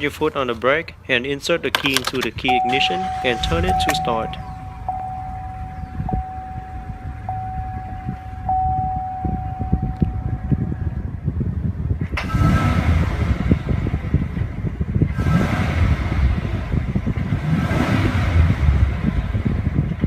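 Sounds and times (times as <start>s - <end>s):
engine low rumble: 2.2s - 20.0s
chime tone: 2.5s - 11.0s.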